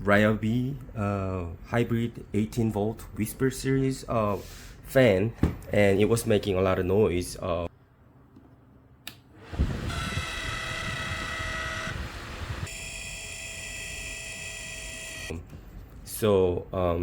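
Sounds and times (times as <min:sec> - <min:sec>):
fan motor grinding whine: 0:09.4 - 0:15.3.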